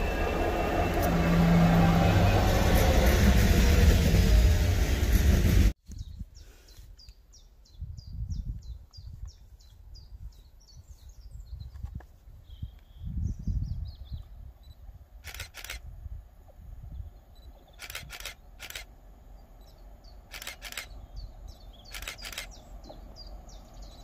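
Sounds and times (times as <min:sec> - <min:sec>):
loud passing train: 0:00.0 - 0:05.8, 0:19.8 - 0:24.0
wind gusts on microphone: 0:07.6 - 0:18.8
small bird singing: 0:19.4 - 0:24.0.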